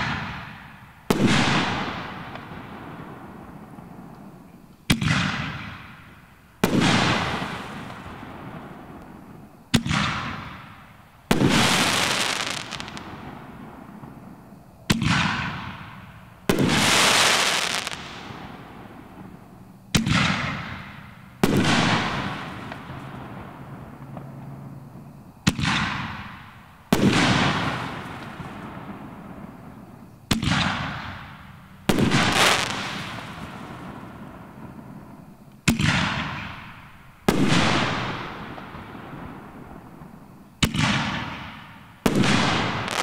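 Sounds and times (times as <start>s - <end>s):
firework crackling: 6.6s - 10.6s, 11.3s - 14.3s, 16.5s - 19.4s, 25.5s - 43.0s.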